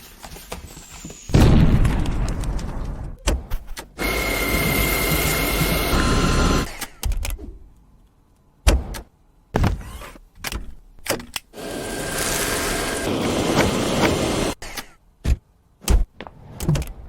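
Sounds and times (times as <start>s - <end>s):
vacuum cleaner motor whining: 4.0s - 6.7s, 11.6s - 14.6s.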